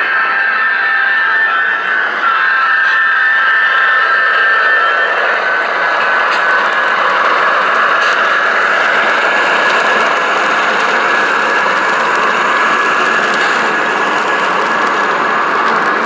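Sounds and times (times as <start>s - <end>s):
model train running: 0.0s - 16.0s
faint clicks: 6.3s - 16.0s.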